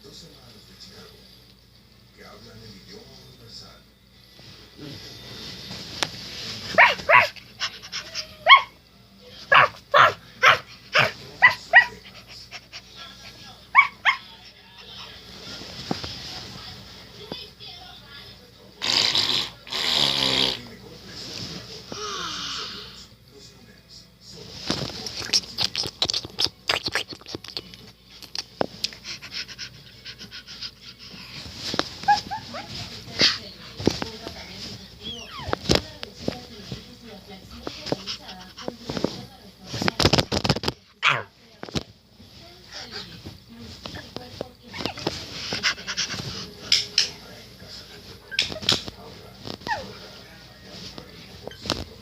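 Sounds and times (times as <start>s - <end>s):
quiet rustling: 4.2s - 18.4s, 20.8s - 22.0s, 24.3s - 25.5s, 27.6s - 52.0s
scratching and rubbing strokes: 4.3s - 8.7s, 9.4s - 17.4s, 28.4s - 40.6s, 42.1s - 52.0s
small dog yapping: 6.7s - 7.4s, 8.0s - 8.8s, 9.5s - 12.0s, 13.8s - 14.2s, 32.0s - 33.4s, 49.6s - 49.9s.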